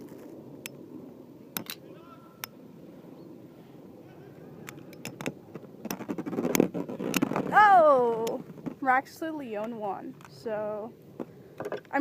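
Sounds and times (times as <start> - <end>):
sharp plastic clacks: 4.6 - 7.6.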